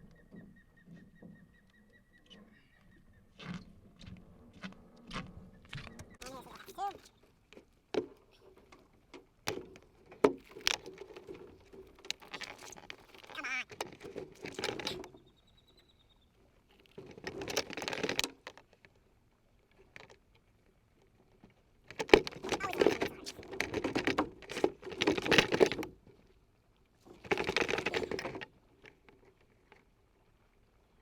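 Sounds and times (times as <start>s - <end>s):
scraping and rustling: 10.4s - 15.1s.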